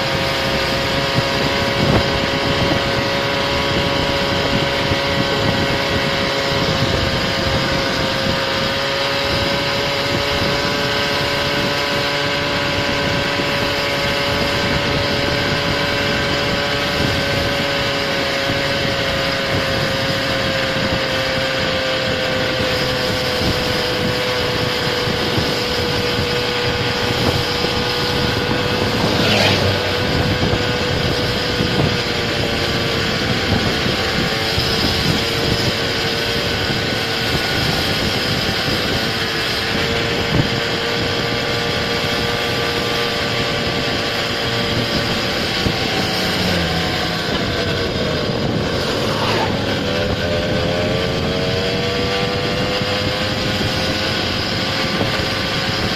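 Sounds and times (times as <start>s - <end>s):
motor scooter engine running: 0.0s - 55.9s.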